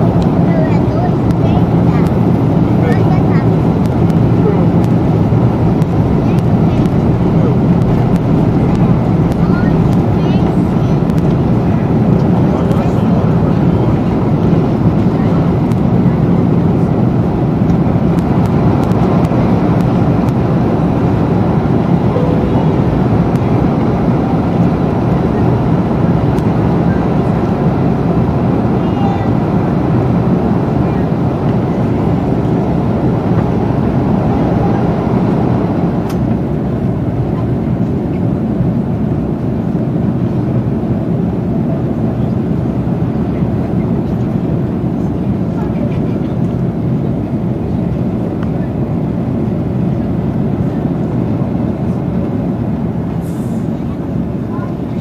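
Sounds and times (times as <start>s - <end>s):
jet engines: 0.0s - 55.0s
rushing air: 3.4s - 26.3s.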